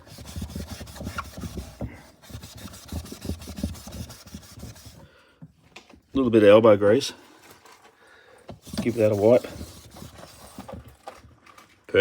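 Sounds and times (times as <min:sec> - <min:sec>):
sponge scrubbing plastic: 0:00.0 - 0:05.0, 0:08.6 - 0:11.2.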